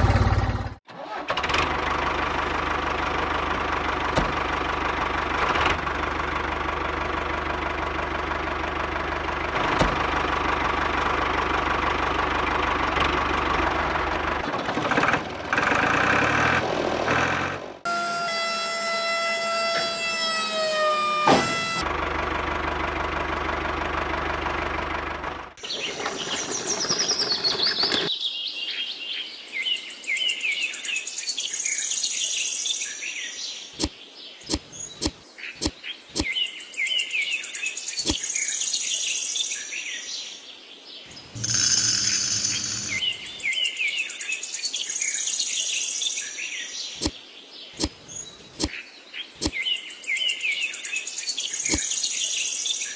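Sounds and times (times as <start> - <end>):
motor falling in pitch: 0.0 - 0.8, 41.4 - 43.0
sharp clicks: 34.5 - 35.2
mechanical noise: 41.4 - 43.0.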